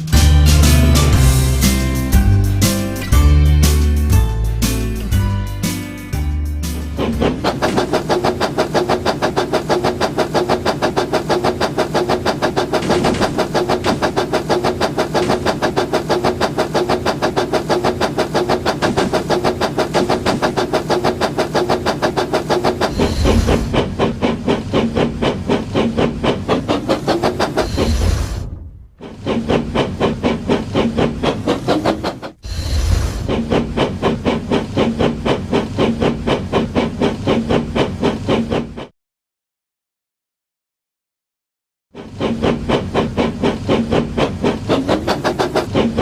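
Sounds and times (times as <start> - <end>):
toy train motor hum: 6.8 - 28.3, 29.0 - 38.9, 42.0 - 46.0.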